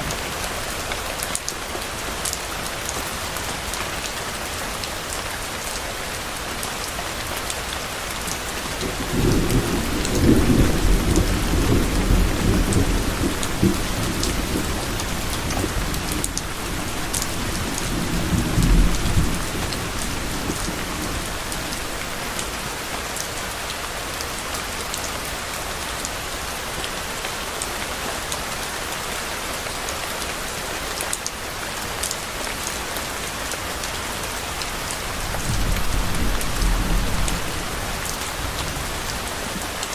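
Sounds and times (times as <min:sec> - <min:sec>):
rain pattering: 0:00.0 - 0:39.9
thunder rumbling: 0:08.8 - 0:22.6, 0:35.2 - 0:38.9.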